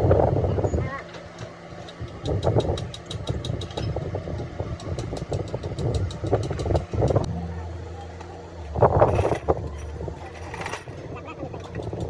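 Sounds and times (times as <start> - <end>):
engine running: 4.4 - 12.0.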